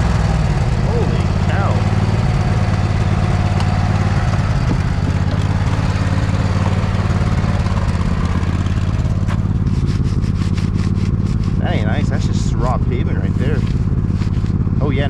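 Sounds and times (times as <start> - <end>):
lawn tractor engine running: 0.0 - 15.0
plow blade scraping ice: 4.4 - 14.7.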